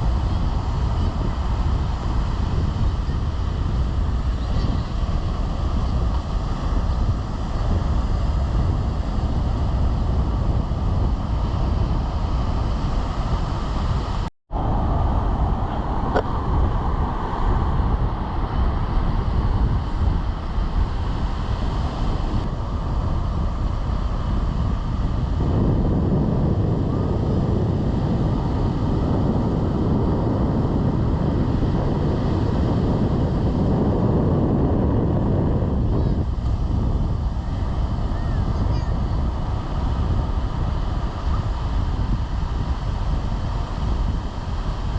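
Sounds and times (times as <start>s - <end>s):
surf rushing: 0.0s - 44.9s
wind buffeting microphone: 0.0s - 44.9s.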